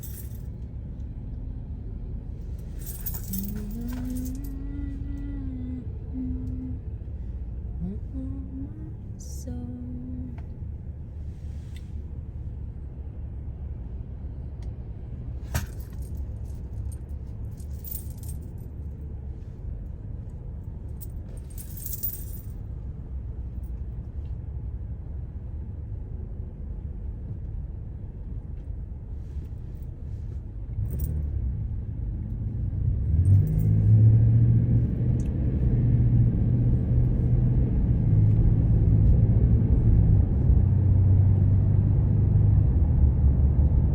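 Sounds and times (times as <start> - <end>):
light clinks and rattles: 0.0 - 0.6, 2.4 - 5.2, 15.5 - 19.0, 20.9 - 22.6, 30.8 - 31.3, 33.2 - 34.0
car engine and road rumble: 0.0 - 43.9.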